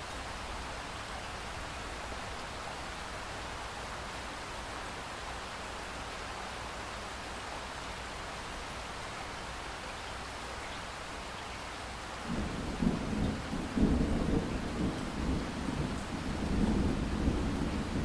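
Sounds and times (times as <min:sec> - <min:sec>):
rain hiss: 0:00.0 - 0:18.0
rolling thunder rumble: 0:12.3 - 0:18.0.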